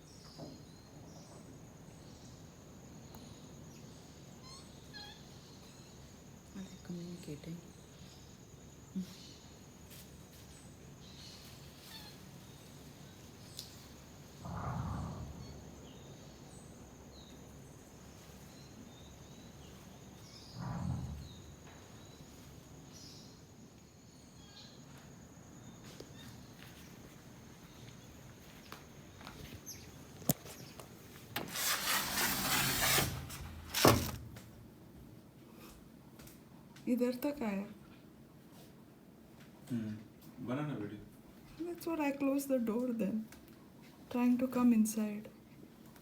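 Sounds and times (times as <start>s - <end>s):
faint high animal chirps: 4.3s - 5.8s, 11.8s - 12.3s
rustles: 8.9s - 16.6s, 24.8s - 34.7s.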